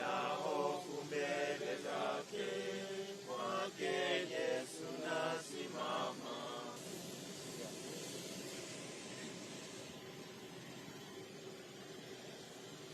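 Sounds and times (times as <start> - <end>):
voices singing a chant: 0.0 - 6.8
steady hiss: 0.0 - 12.9.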